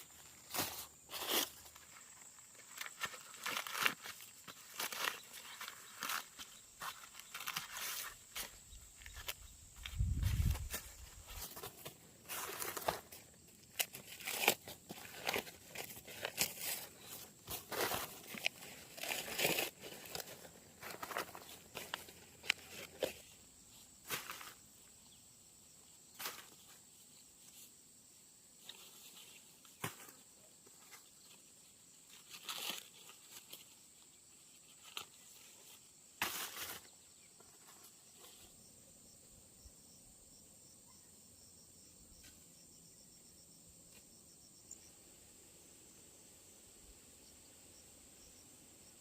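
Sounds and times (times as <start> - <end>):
rustling and crackling: 0.0 - 23.3
insects chirring: 0.0 - 49.0.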